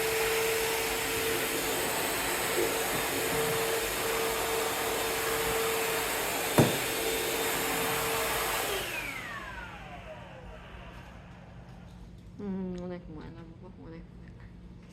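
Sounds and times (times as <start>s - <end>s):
motor winding down whine: 0.0s - 11.9s
vacuum cleaner running: 0.0s - 12.0s
sharp knock: 6.6s - 7.0s.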